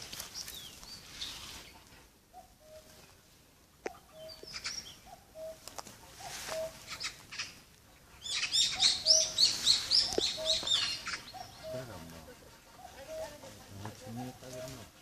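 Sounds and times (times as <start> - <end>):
bird low two-part call: 8.4 - 11.9.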